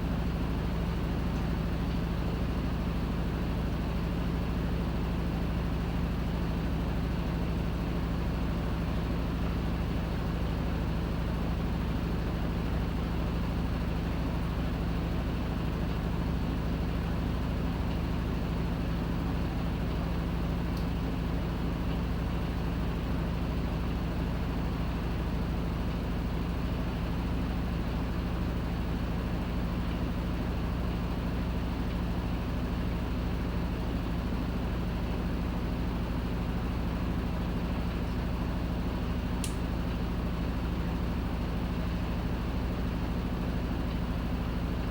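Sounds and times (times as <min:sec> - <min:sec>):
faint tick: 0:39.4 - 0:39.6.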